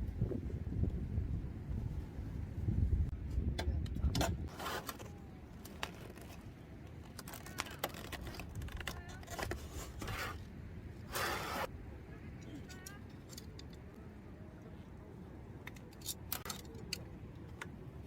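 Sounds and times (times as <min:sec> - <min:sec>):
scraping or rustling: 0:04.4 - 0:06.5, 0:07.1 - 0:10.4, 0:11.0 - 0:11.7.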